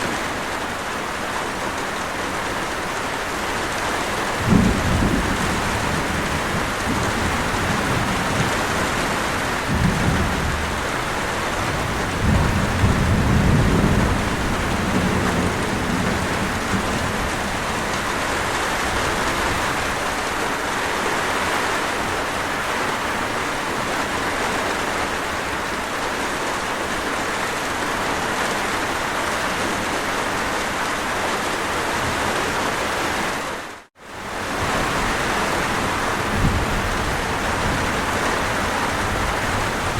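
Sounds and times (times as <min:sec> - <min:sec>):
heavy rainfall: 0:00.0 - 0:39.9
thunder rolling: 0:04.3 - 0:19.9, 0:34.6 - 0:39.9.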